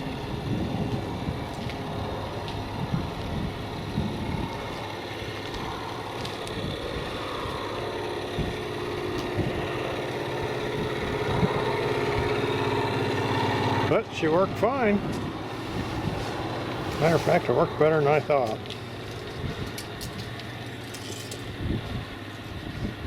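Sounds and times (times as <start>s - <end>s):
excavator engine idling: 0.0s - 23.0s
person talking: 13.9s - 15.2s, 16.8s - 18.6s.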